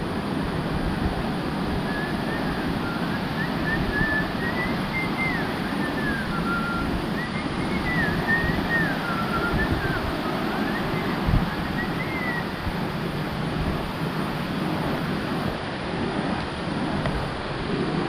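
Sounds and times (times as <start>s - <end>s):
water rushing from waterfalls: 0.0s - 18.0s
whistled tune: 1.9s - 12.5s.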